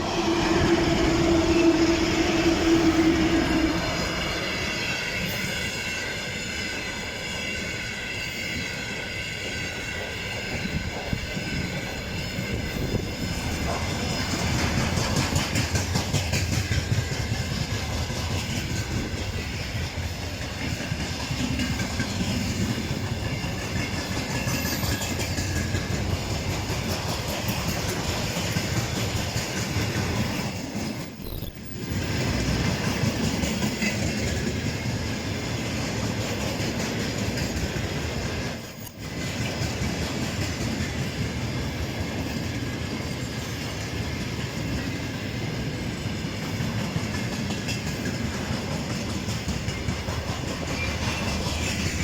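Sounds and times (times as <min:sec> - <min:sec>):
train rumbling past: 0:00.0 - 0:52.0
wheels clicking over rail joints: 0:09.7 - 0:31.2, 0:31.8 - 0:45.2, 0:46.3 - 0:52.0
steady high tones: 0:31.1 - 0:32.0.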